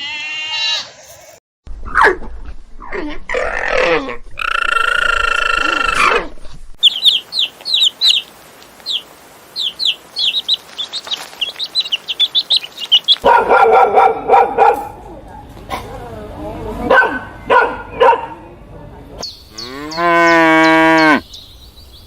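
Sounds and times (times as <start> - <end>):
small bird chirping rapidly: 6.8 - 13.3.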